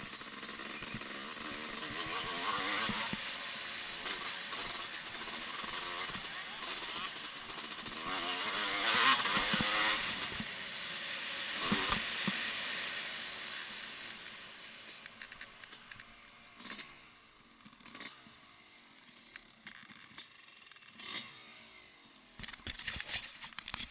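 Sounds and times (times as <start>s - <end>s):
motocross bike engine: 0.0s - 23.9s.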